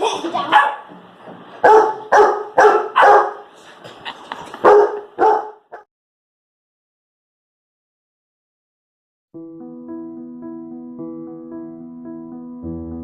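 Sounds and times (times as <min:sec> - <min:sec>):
puppy barking: 0:00.4 - 0:00.9, 0:01.6 - 0:03.5, 0:04.6 - 0:05.9.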